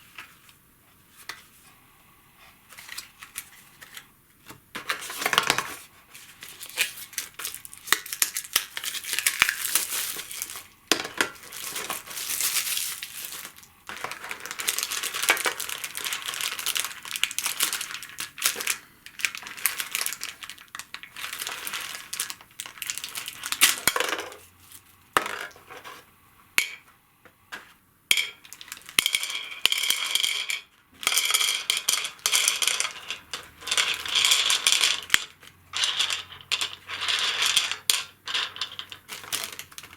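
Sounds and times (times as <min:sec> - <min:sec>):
packaging crinkling: 0:06.4 - 0:23.9, 0:38.6 - 0:39.9.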